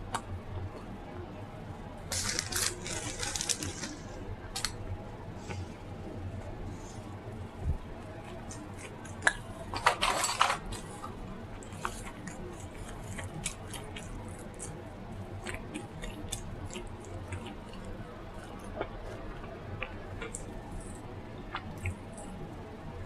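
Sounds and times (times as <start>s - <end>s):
person chewing: 10.6s - 22.4s.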